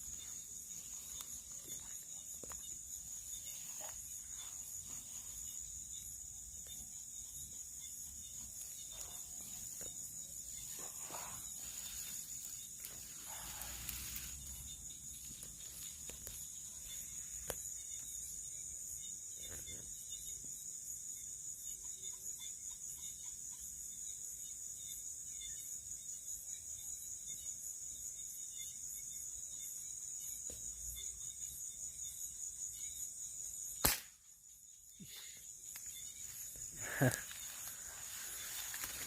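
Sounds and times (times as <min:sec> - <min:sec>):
crickets chirring: 0:00.0 - 0:39.0
sharp crack: 0:33.8 - 0:34.2.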